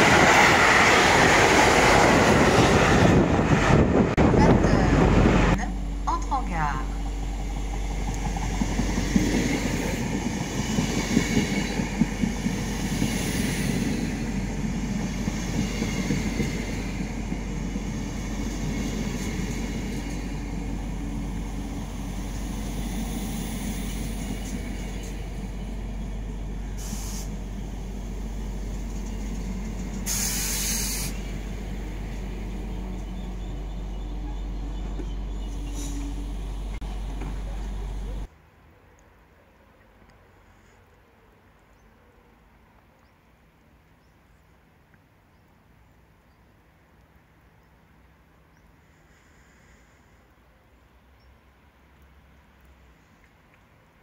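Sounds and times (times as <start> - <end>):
compressed air hiss: 26.8 - 27.4, 29.9 - 31.5
train wheels clicking over rail joints: 28.5 - 32.3.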